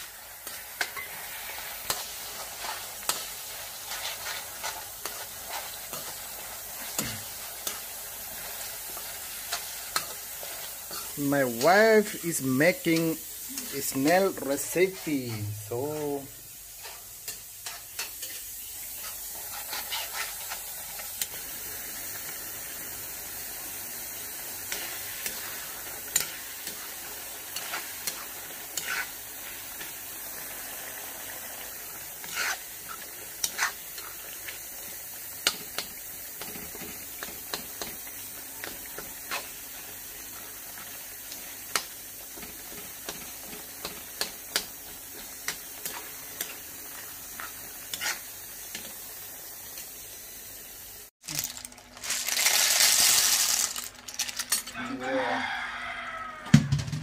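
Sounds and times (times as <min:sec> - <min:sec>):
gravy sizzling and bubbling in wok: 0:00.0 - 0:57.0
metal spatula scraping a pan: 0:08.9 - 0:12.4, 0:16.8 - 0:20.7, 0:27.5 - 0:29.2, 0:30.7 - 0:34.3, 0:47.4 - 0:48.2.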